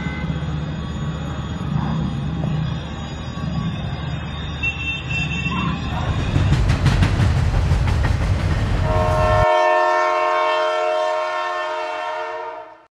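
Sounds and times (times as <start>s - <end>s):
train rumbling and clattering: 0.0s - 11.7s
train horn chord: 8.7s - 12.9s.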